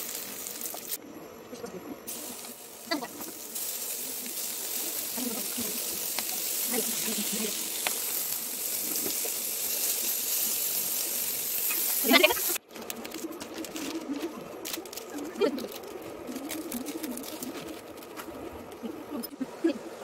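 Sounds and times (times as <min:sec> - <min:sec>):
meat sizzling in hot oil: 0:00.0 - 0:01.0, 0:02.1 - 0:12.6.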